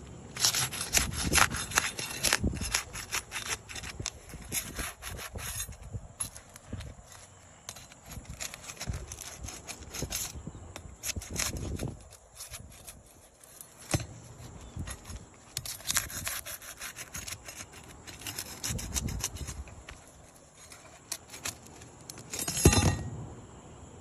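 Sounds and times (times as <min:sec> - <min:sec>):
hand tool scraping roof shingles: 0:00.3 - 0:23.0.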